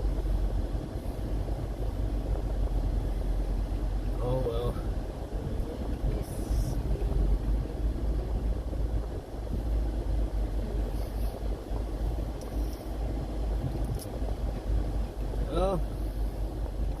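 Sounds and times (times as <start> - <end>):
engine and tyre rumble: 0.0 - 17.0.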